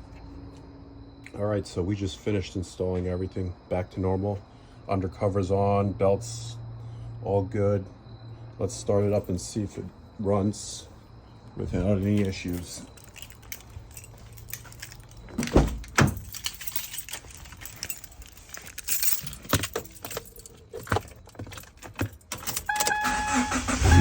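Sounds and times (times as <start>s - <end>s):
car keys jangling: 11.7s - 23.6s
dashboard warning chime: 22.4s - 24.0s.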